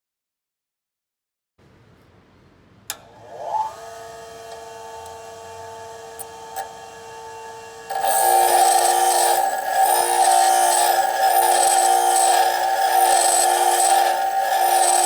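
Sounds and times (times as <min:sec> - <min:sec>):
bench grinder whine: 0:03.0 - 0:15.0.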